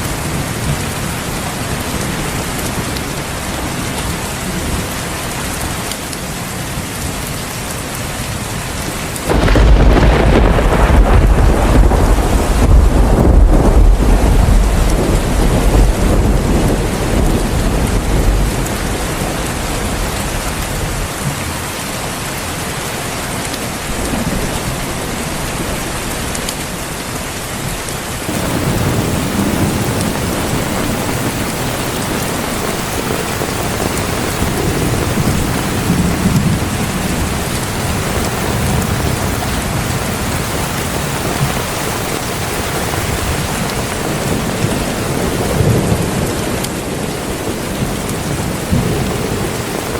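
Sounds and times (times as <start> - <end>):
heavy rain: 0.0 - 49.9
thunder rolling: 9.3 - 19.0, 28.2 - 49.9.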